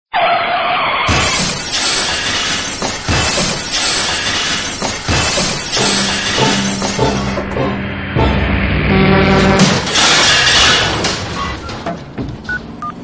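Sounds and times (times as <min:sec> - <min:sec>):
glass shattering: 0:01.1 - 0:07.4
metal breaking: 0:01.1 - 0:07.5, 0:09.6 - 0:12.8
crash impacts: 0:01.1 - 0:12.5
music with low notes: 0:06.0 - 0:09.8.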